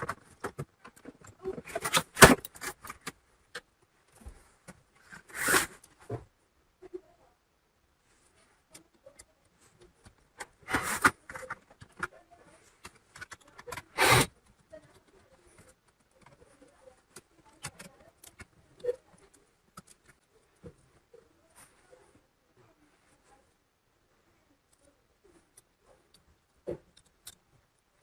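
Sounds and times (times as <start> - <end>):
laptop parts clicking and scraping: 0.0 - 3.8, 4.6 - 6.0, 8.6 - 20.4, 24.7 - 27.9.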